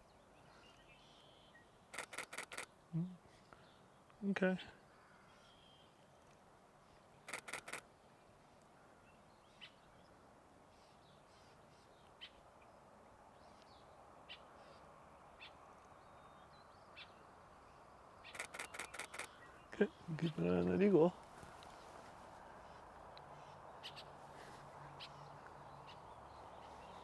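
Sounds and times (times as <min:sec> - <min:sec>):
camera shutter clicks: 0:02.0 - 0:02.7, 0:07.3 - 0:07.8, 0:18.4 - 0:19.3
faint high bird chirps: 0:18.2 - 0:20.4.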